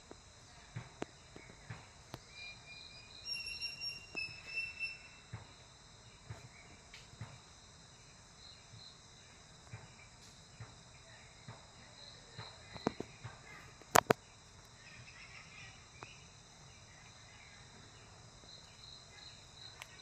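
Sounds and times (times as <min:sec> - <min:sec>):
whistled bird notes: 0:01.4 - 0:05.6
high-pitched insect drone: 0:02.1 - 0:07.0.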